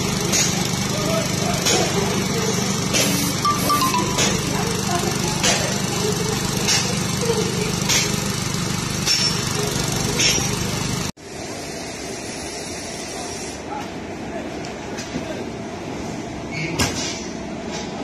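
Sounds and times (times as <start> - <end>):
small petrol engine running: 0.0 - 11.2.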